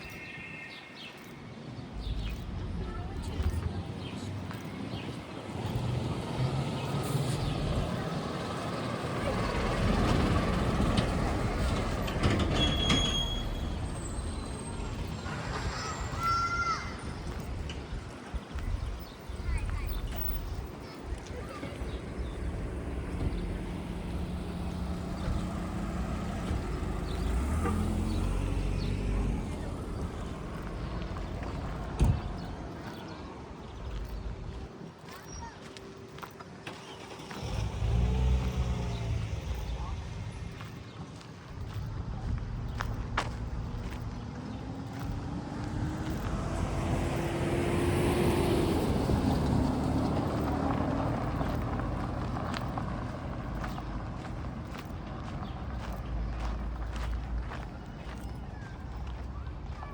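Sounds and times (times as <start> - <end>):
vehicle engine humming: 1.2 - 59.9.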